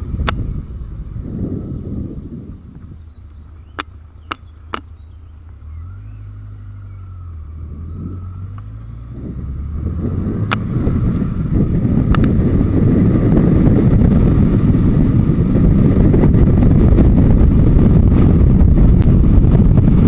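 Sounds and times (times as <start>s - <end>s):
motorcycle engine running: 0.0s - 20.0s
wind noise: 0.0s - 20.0s
sharp clicks: 2.8s - 5.6s, 12.1s - 12.4s.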